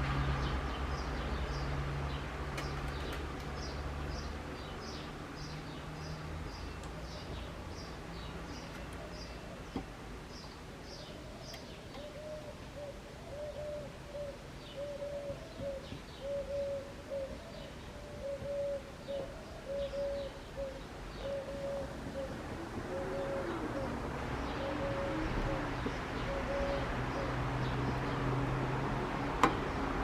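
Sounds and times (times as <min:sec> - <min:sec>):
pigeon cooing: 0:12.0 - 0:27.4.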